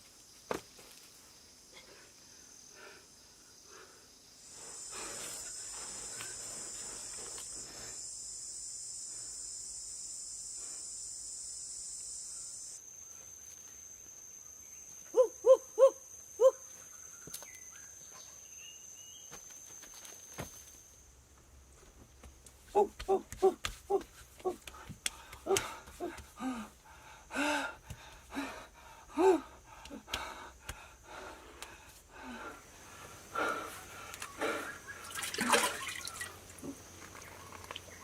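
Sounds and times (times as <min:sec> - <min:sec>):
insects shrilling: 0:04.2 - 0:21.0, 0:30.7 - 0:38.0.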